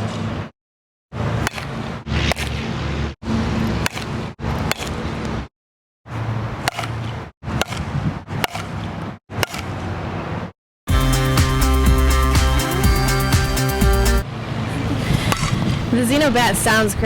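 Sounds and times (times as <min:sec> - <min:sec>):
outdoor background noise: 0:00.0 - 0:00.5, 0:01.1 - 0:05.5, 0:06.1 - 0:10.6, 0:14.0 - 0:17.0
bat hitting ball: 0:01.4 - 0:02.6, 0:03.8 - 0:05.1, 0:06.5 - 0:09.8, 0:14.7 - 0:16.2.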